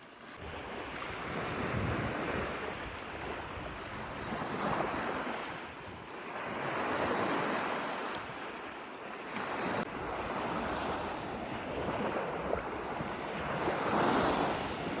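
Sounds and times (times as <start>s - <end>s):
waves washing onto shore: 0.0s - 15.0s
wind on microphone: 0.4s - 8.4s, 9.4s - 15.0s.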